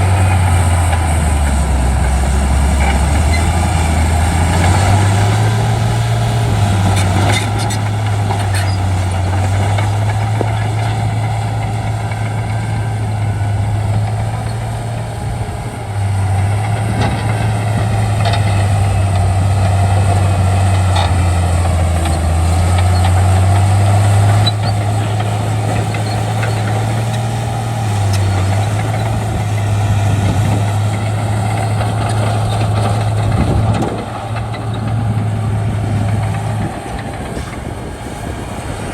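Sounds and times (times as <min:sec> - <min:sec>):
bulldozer diesel engine under load: 0:00.0 - 0:38.9.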